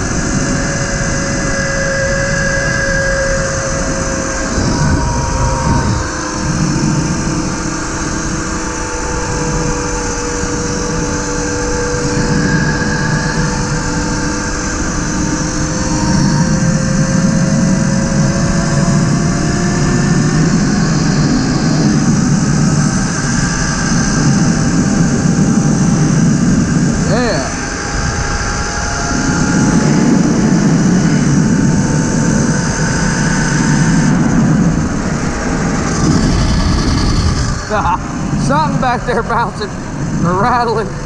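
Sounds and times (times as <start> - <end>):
electric motor whining: 0.0 - 40.4
wind: 0.0 - 41.0
tyre rumble: 35.9 - 37.8.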